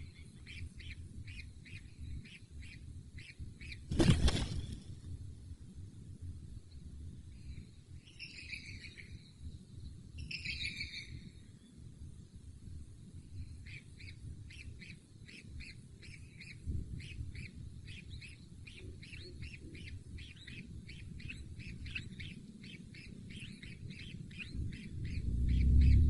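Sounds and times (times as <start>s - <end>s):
bird chirping: 0.0s - 4.7s, 7.4s - 9.4s, 10.2s - 11.3s, 13.4s - 26.0s
low rumble: 23.3s - 26.0s.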